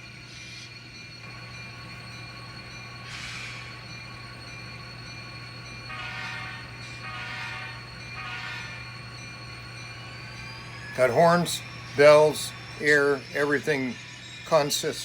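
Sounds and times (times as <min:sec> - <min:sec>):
model locomotive engine hum: 0:00.0 - 0:15.0
locomotive horn blasts: 0:05.9 - 0:08.9.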